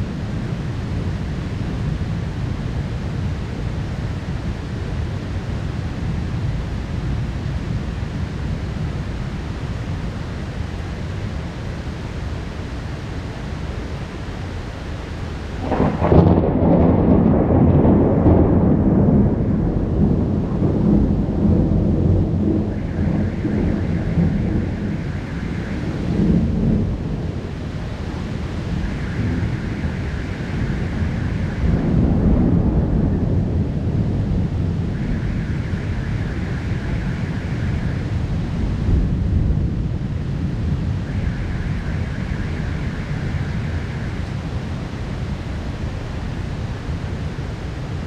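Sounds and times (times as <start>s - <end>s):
heavy rain falling: 0.0s - 48.0s
low thunder rumble: 15.4s - 48.0s
loud thunderclap: 15.6s - 45.0s.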